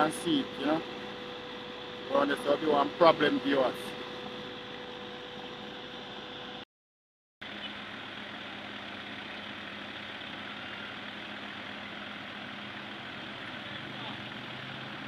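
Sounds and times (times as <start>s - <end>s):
heavy vehicle engine running: 0.0s - 5.8s, 7.4s - 15.0s.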